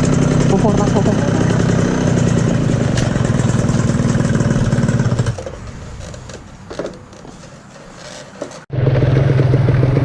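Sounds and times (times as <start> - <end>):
motorcycle engine idling: 0.0 - 5.4.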